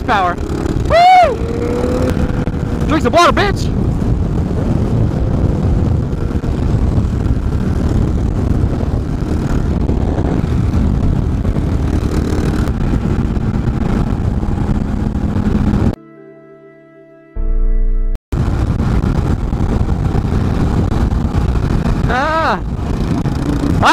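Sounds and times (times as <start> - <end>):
motorcycle engine running: 0.0 - 16.0, 18.3 - 23.9
wind noise on microphone: 0.0 - 16.0, 18.3 - 23.9
music: 16.0 - 18.2.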